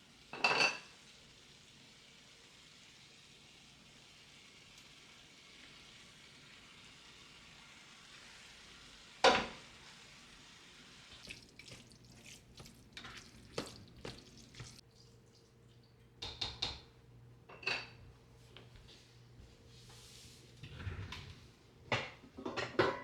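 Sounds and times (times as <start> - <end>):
dishes and utensils clattering: 0.3 - 0.9, 17.5 - 18.0, 22.0 - 23.0.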